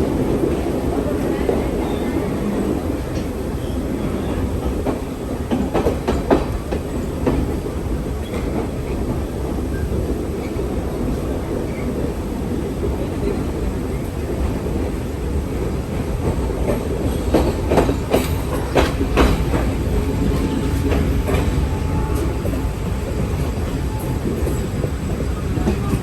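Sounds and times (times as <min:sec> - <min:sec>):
train rumbling on rails: 0:00.0 - 0:26.0
wheels clacking over rail joints: 0:04.6 - 0:07.6, 0:15.9 - 0:26.0.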